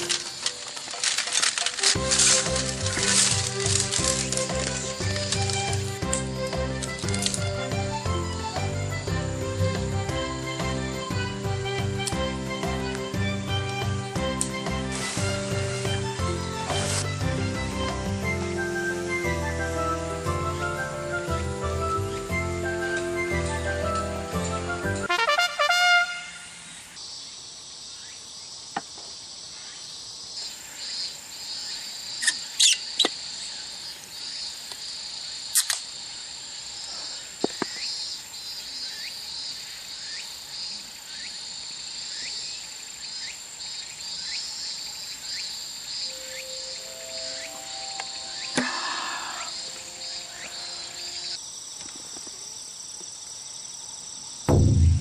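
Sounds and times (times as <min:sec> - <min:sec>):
insects chirping: 0:00.0 - 0:55.0
sharp knocks: 0:54.5 - 0:55.0.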